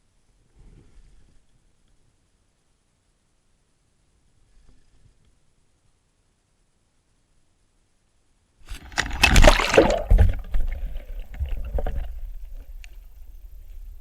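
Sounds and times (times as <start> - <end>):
water splashing around a boat: 8.7 - 13.2.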